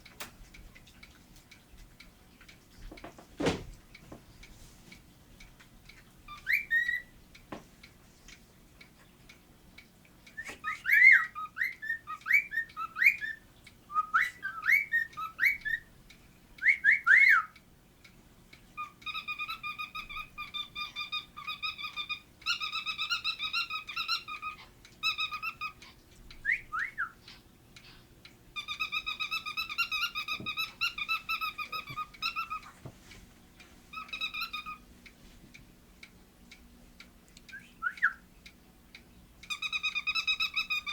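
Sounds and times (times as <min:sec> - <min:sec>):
cockatiel whistling: 0:06.4 - 0:07.1, 0:10.4 - 0:15.9, 0:16.6 - 0:17.6, 0:26.4 - 0:27.2, 0:37.5 - 0:38.2
bird warbling chatter: 0:28.6 - 0:32.8, 0:33.9 - 0:34.8.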